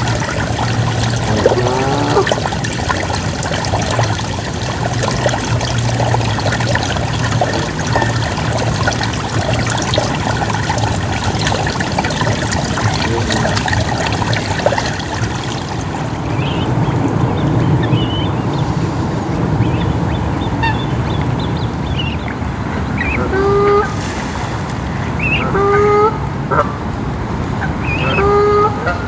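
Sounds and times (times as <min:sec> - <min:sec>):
low steady hum: 0:00.0 - 0:20.1
rain pattering on water: 0:00.0 - 0:21.6.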